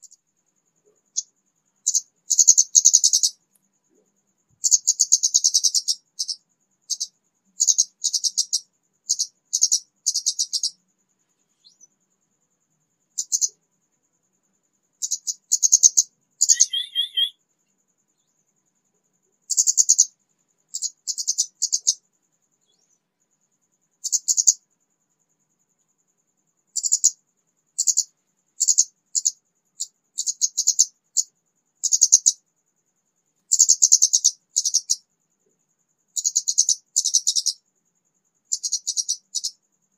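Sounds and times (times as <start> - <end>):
bird high chirps: 1.1 - 3.4, 4.6 - 10.8, 11.5 - 11.9, 15.0 - 17.4, 33.5 - 35.0, 36.2 - 37.6
bird warbled phrase: 16.4 - 17.3.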